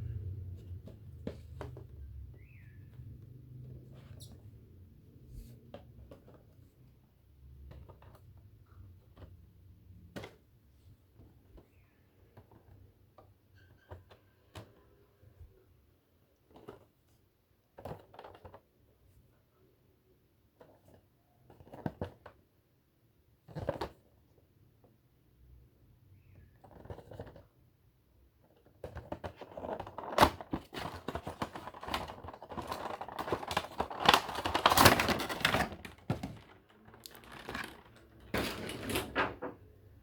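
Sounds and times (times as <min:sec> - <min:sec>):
packaging scrapes and rustles: 0:29.0 - 0:39.5.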